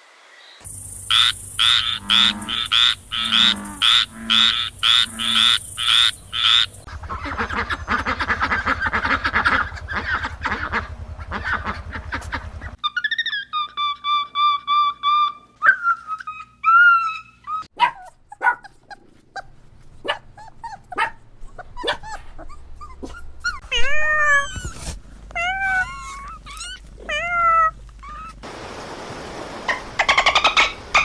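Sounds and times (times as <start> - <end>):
dog yipping and whimpering: 12.8 - 28.4.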